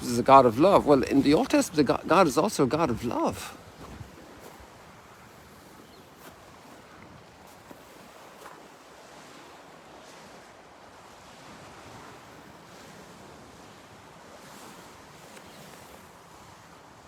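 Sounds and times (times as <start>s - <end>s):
wind on microphone: 0.0s - 10.4s
small waves washing on shore: 0.0s - 17.0s.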